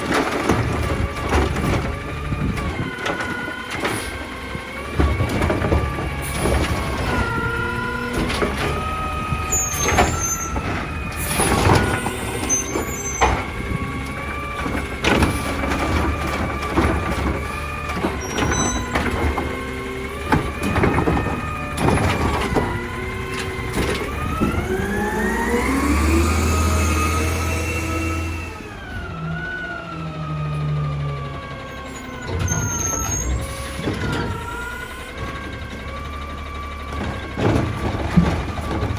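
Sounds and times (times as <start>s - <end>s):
metal clanks and bangs: 0.0s - 29.4s, 31.5s - 38.9s
garbage truck engine whine: 0.0s - 38.9s.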